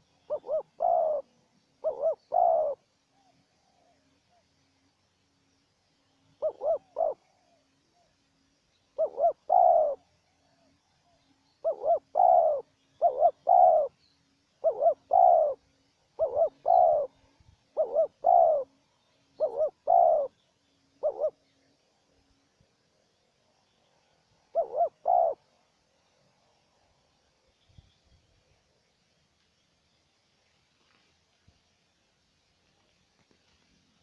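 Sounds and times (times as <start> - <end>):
doves cooing: 0.0 - 4.4, 6.4 - 8.1, 9.0 - 10.7, 11.6 - 14.0, 14.6 - 20.4, 21.0 - 21.4, 24.4 - 25.6.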